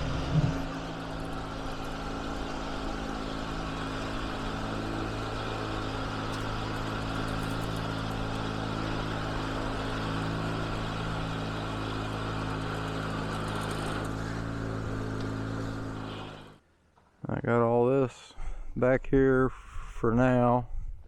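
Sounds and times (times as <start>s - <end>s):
garden tractor engine idling: 0.0s - 16.6s.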